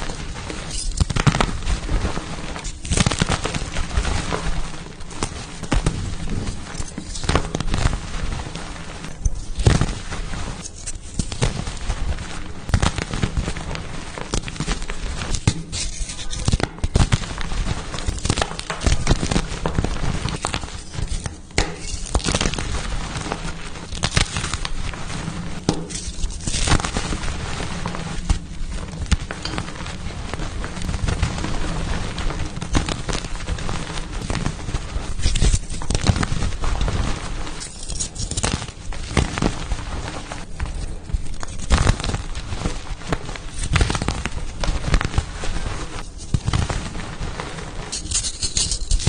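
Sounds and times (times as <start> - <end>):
chalk blocks crunching: 14.4 - 27.6, 32.4 - 39.6, 47.8 - 49.0.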